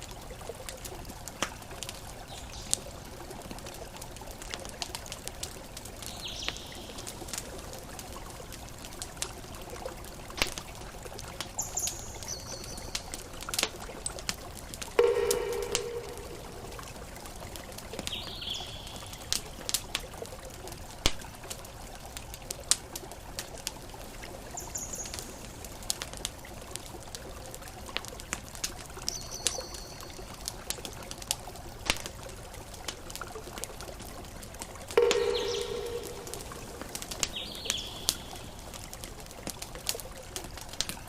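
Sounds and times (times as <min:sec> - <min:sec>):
campfire crackling and popping: 0:00.0 - 0:41.0
high bird chirps: 0:35.0 - 0:38.4.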